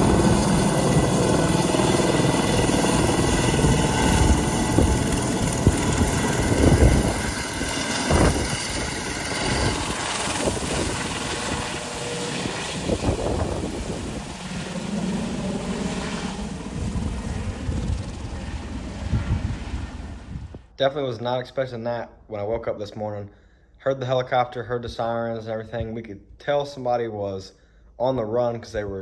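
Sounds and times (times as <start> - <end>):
helicopter turbine and rotor: 0.0 - 20.6.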